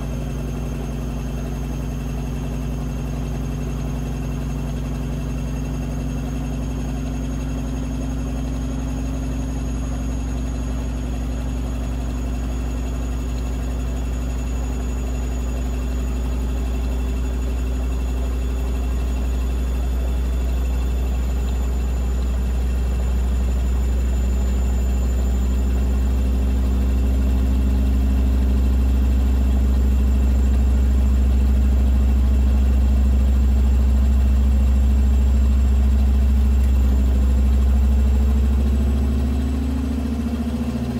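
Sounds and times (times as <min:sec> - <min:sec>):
washing machine spinning: 0:00.0 - 0:40.9.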